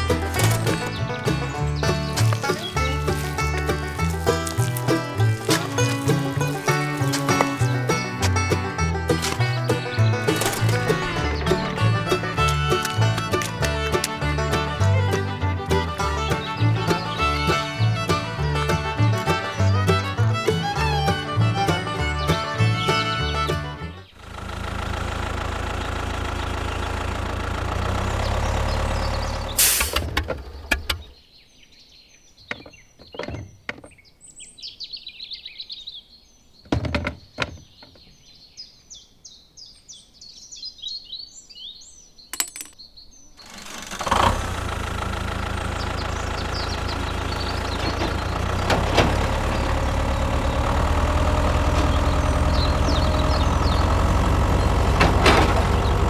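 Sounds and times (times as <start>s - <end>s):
machine motor humming: 0.0s - 17.2s, 43.4s - 56.0s
sharp clicks and knocks: 0.0s - 17.6s, 42.4s - 42.8s, 46.4s - 56.0s
birds chirping: 0.0s - 56.0s.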